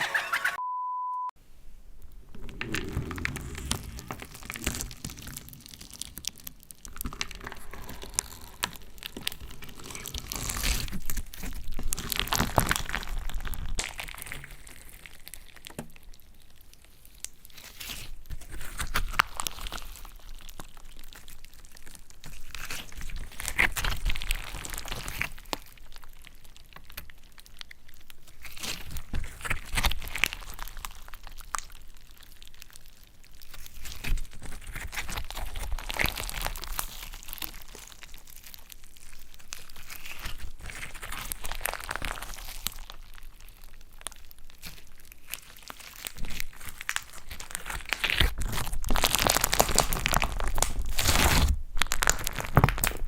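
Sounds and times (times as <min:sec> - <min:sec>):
slime squeezed and crackling: 0:02.3 - 0:53.0.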